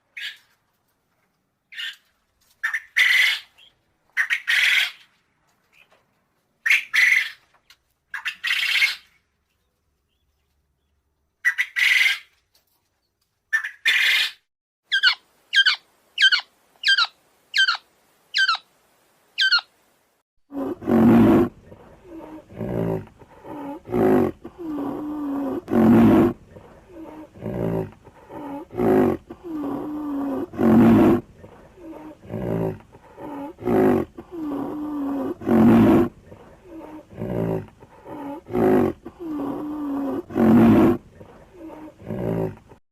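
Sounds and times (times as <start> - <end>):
sharp bird calls: 13.5 - 17.8, 18.4 - 18.6, 19.4 - 19.7
large animal roaring: 20.5 - 42.8.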